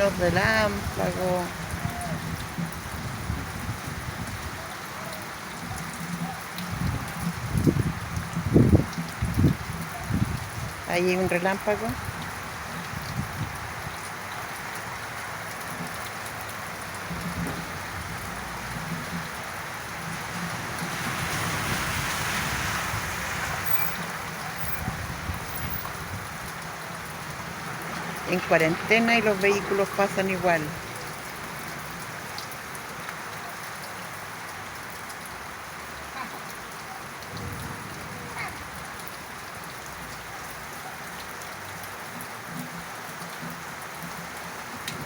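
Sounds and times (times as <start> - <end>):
heavy rain splashing: 0.0 - 45.0.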